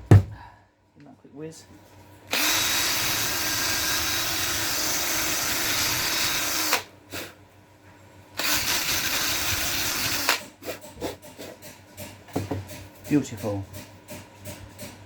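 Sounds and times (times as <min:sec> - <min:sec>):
power drill running: 0:02.3 - 0:06.9, 0:08.4 - 0:10.4.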